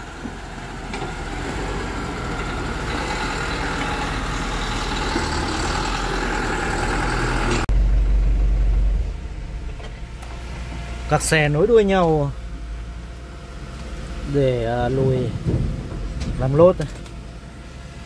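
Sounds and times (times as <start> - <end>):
deep heavy rumble: 0.0 - 18.0
truck engine running: 0.0 - 18.0.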